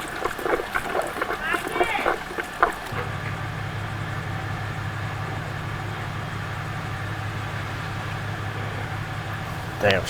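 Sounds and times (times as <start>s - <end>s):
vehicle engine idling: 2.9s - 10.0s.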